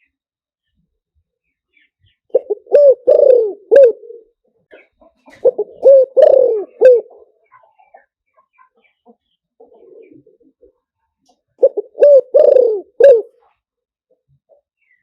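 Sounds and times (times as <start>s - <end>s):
dove cooing: 2.3s - 4.3s, 5.3s - 7.3s, 9.7s - 10.5s, 11.6s - 13.4s.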